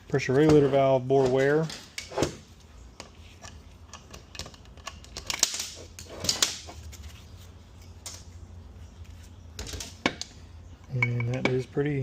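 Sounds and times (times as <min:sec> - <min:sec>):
metal parts clicking and tapping: 0:03.0 - 0:06.6.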